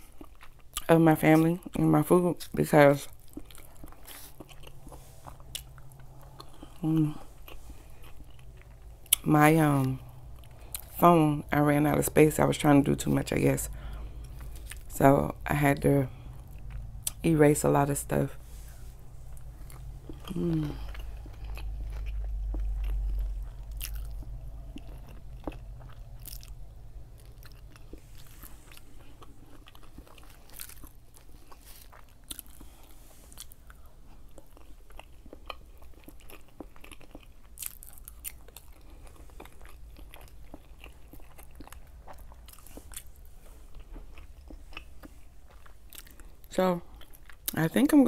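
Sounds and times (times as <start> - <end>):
person chewing food: 0.0 - 1.8, 2.9 - 11.0, 12.5 - 17.2, 18.2 - 47.6
low rumble: 3.4 - 31.3.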